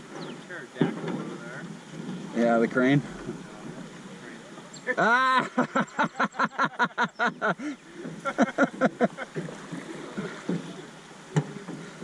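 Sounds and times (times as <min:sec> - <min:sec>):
water noise from canoe: 0:00.0 - 0:12.0
person laughing: 0:04.9 - 0:09.3.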